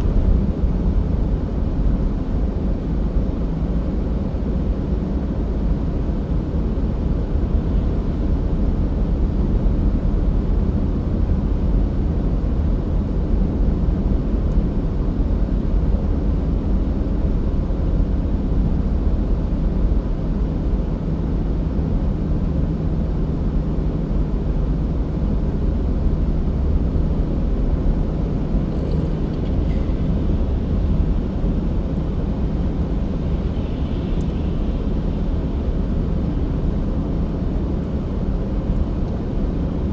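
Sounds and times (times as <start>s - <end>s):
car driving rumble: 0.0s - 39.9s
faint hum: 0.0s - 39.9s.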